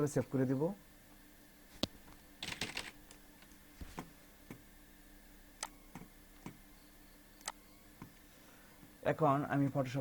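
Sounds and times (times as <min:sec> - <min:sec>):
sharp computer clicks: 0:02.4 - 0:03.2, 0:07.4 - 0:07.7.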